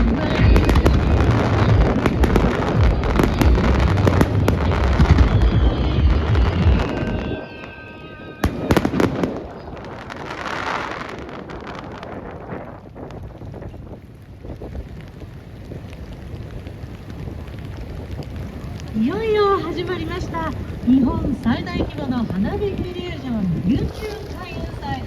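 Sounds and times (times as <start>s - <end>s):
deep rumbling booms: 0.0s - 7.4s
fireworks bursting and crackling: 0.0s - 25.0s.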